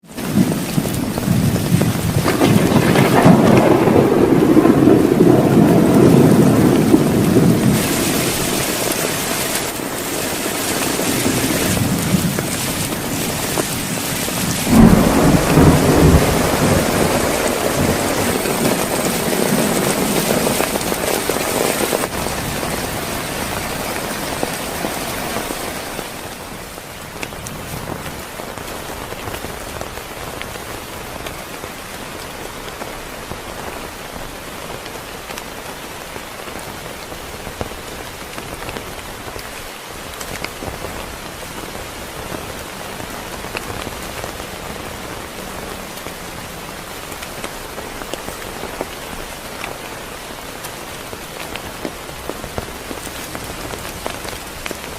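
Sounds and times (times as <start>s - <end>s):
heavy rain: 0.0s - 54.9s
thunder rumbling: 0.2s - 30.0s.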